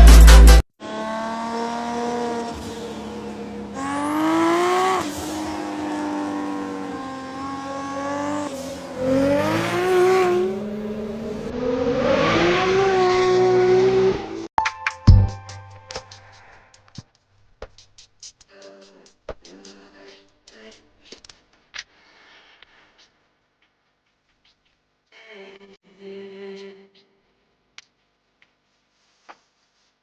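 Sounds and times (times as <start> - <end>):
loud electronic music: 0.0 - 0.6
sports car engine revving: 0.0 - 14.5.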